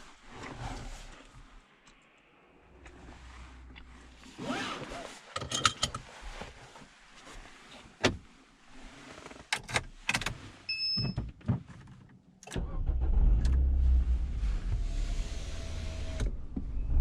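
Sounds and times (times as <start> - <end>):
car engine starting and idling: 12.4 - 17.0.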